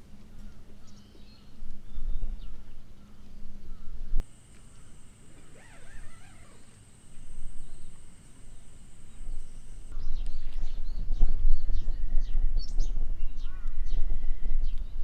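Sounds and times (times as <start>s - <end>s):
birds chirping and whistling: 4.2s - 15.0s.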